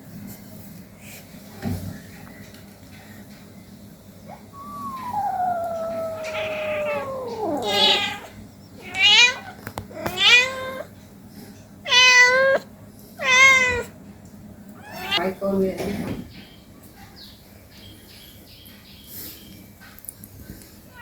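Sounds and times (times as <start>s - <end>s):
cat meowing: 4.5s - 10.9s, 11.9s - 13.9s, 14.8s - 15.2s.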